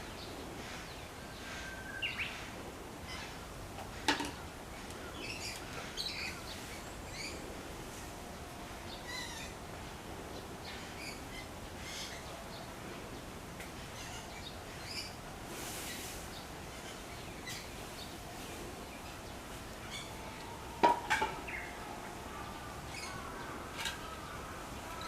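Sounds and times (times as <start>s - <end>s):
steady outdoor hiss: 0.0s - 25.0s
small birds chirping: 8.8s - 25.0s.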